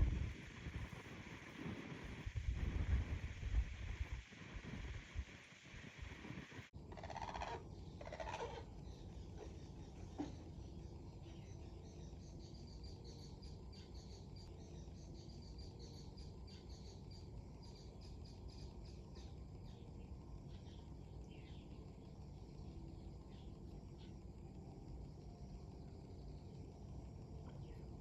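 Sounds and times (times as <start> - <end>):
wind rumbling on microphone: 0.0 - 8.5.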